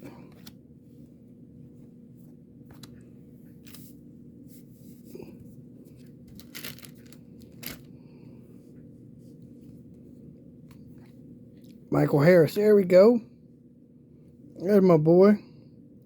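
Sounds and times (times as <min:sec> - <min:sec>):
faint low hum: 0:00.0 - 0:16.0
wrappers rustling and tearing: 0:06.3 - 0:07.9.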